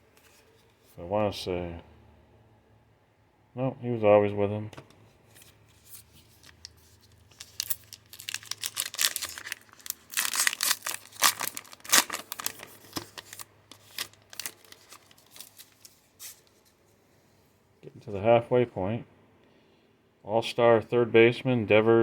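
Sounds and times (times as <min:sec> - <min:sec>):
wrapper tearing and crinkling: 0:05.8 - 0:16.5.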